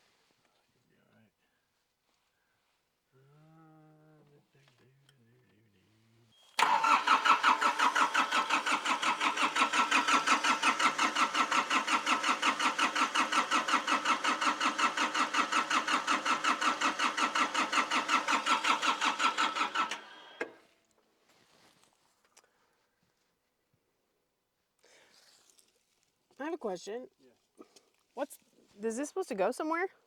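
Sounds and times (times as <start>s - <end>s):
diesel engine starter cranking: 6.5s - 20.6s.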